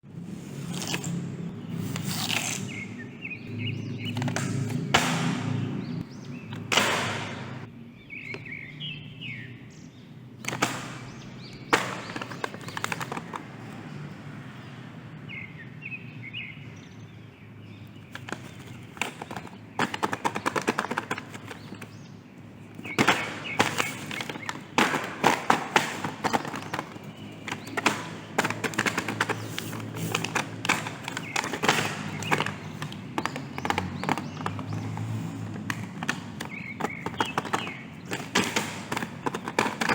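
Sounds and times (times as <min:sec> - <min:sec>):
bird chirps: 0:07.5 - 0:13.2
hands handling toy packaging: 0:11.5 - 0:13.8, 0:18.0 - 0:22.0, 0:22.6 - 0:39.9.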